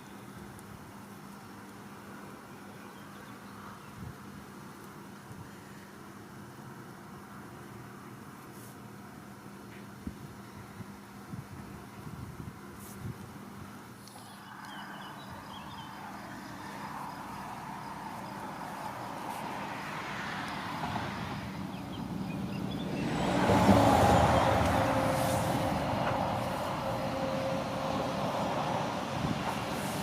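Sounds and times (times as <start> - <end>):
train passing close: 15.6 - 30.0.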